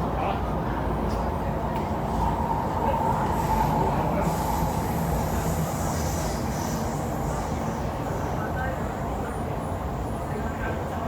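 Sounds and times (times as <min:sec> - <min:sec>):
electric train wheels rumbling: 0:01.3 - 0:08.4.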